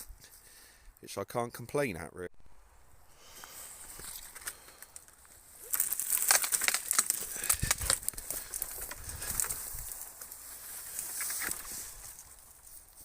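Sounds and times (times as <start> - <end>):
dead branches crackling and snapping: 3.4 - 13.0.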